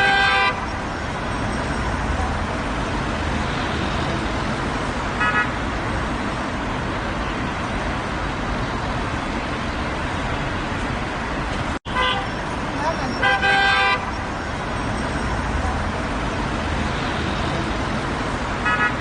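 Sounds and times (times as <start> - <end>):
car horn toot: 0.0 - 0.7, 11.9 - 12.4, 13.1 - 14.1, 18.6 - 19.0
traffic roar: 0.0 - 19.0.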